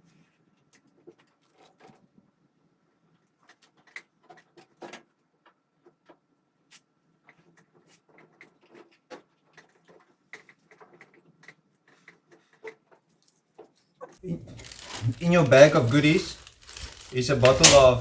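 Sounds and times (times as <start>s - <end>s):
hands handling small parts: 14.2s - 18.0s.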